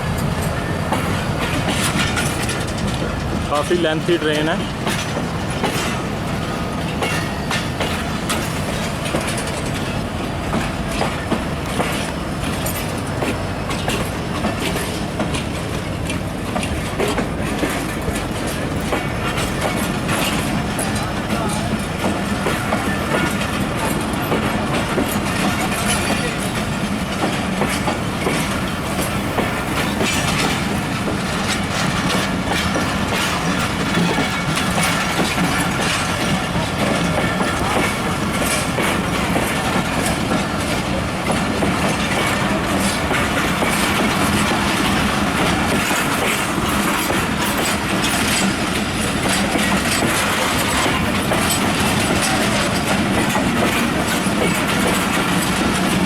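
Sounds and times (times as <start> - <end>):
train rumbling past: 0.0 - 56.0
train wheels clacking on rails: 0.0 - 56.0.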